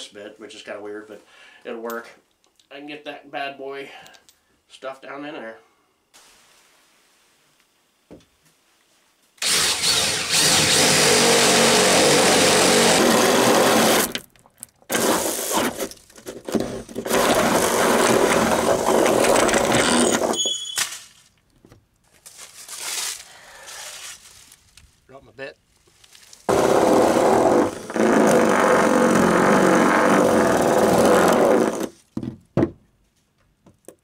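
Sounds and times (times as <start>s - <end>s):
power drill boring a hole: 9.4s - 14.2s, 14.9s - 15.9s, 16.5s - 20.4s, 26.5s - 31.9s.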